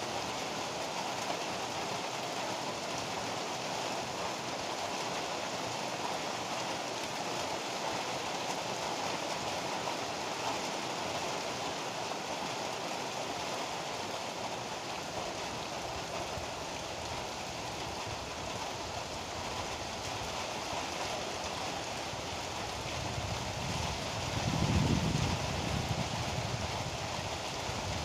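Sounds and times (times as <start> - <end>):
heavy rain falling: 0.0 - 28.0
thunder rumbling: 22.9 - 28.0.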